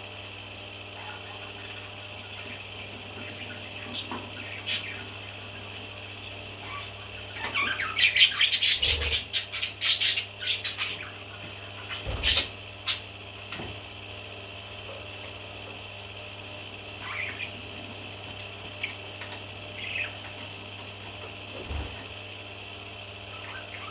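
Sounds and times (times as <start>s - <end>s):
steady background hum: 0.0s - 23.9s
baby parrots calling: 6.6s - 11.2s, 11.8s - 13.1s, 17.0s - 17.6s, 19.8s - 20.2s.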